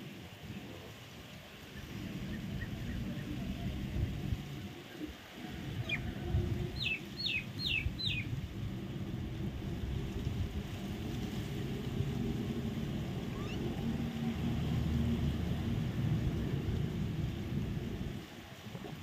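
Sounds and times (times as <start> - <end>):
low rumble: 5.6 - 18.2
bird whistling: 6.8 - 8.3, 13.3 - 13.6.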